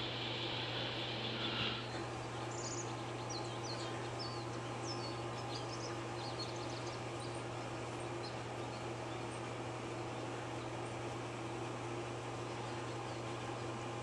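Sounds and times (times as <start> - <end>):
hissing noise: 0.0 - 2.0
steady low hum: 0.0 - 14.0
high bird chirps: 0.3 - 7.0.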